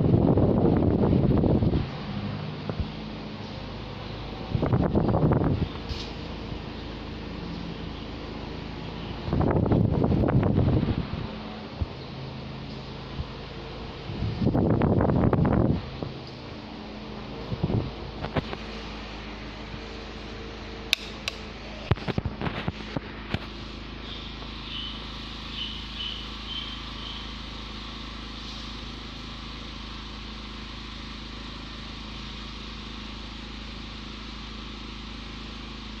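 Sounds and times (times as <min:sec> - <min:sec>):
ceiling fan humming: 0:00.0 - 0:36.0
faint high chirps: 0:24.0 - 0:27.5.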